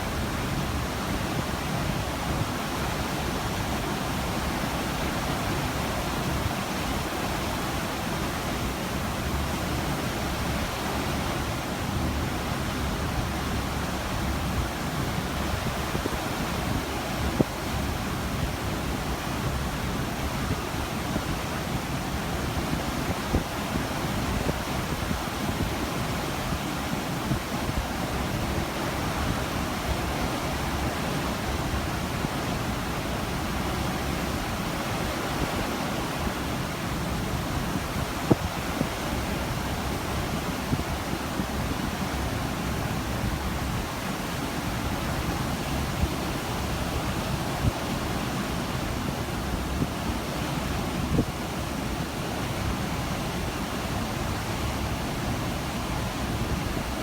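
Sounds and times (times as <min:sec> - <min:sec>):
ocean water and wind rushing: 0:00.0 - 0:57.0.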